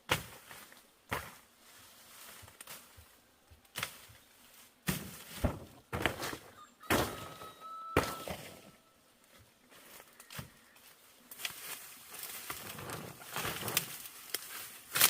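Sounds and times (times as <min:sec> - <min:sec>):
dull thuds: 0:04.8 - 0:08.8
faint thin whistle: 0:06.5 - 0:09.0.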